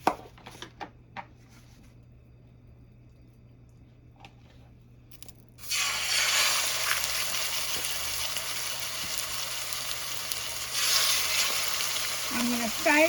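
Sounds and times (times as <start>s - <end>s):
chicken sizzling in hot oil: 5.6s - 13.0s.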